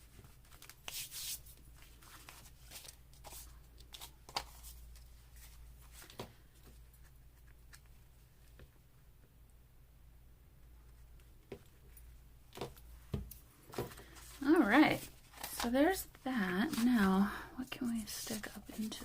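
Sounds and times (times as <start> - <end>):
paper rustling: 0.0 - 7.9, 13.7 - 15.8, 16.6 - 17.2, 18.1 - 19.0.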